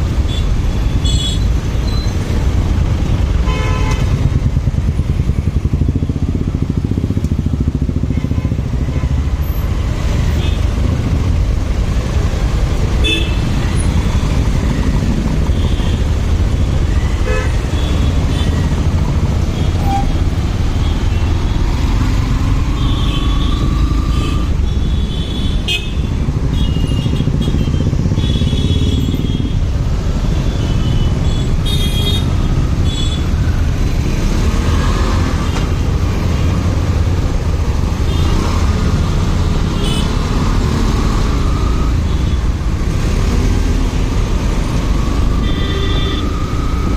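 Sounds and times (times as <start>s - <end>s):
motorcycle engine rumble: 0.0s - 34.3s.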